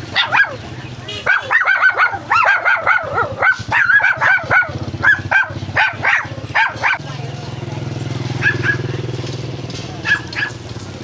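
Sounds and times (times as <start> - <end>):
dog yelping: 0.0 - 0.6, 1.2 - 7.0, 8.4 - 8.9, 10.0 - 10.6.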